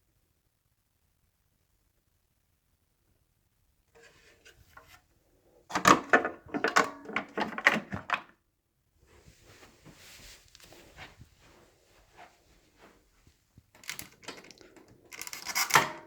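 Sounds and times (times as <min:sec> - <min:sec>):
vacuum parts clicking: 0:05.7 - 0:08.3, 0:13.8 - 0:16.0
plastic parts clacking and knocking: 0:05.7 - 0:08.4, 0:13.7 - 0:16.0.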